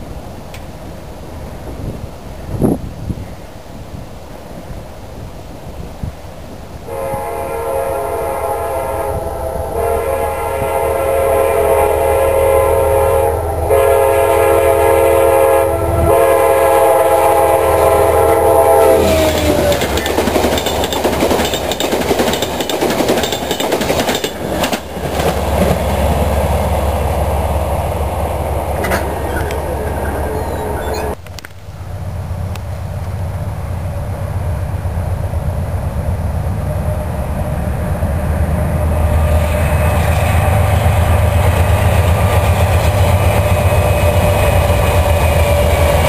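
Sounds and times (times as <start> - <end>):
locomotive air horn blasts: 6.9 - 19.4
locomotive engine drone: 7.6 - 46.0
train wheels clattering on rails: 18.9 - 26.6, 28.7 - 31.6, 39.1 - 46.0.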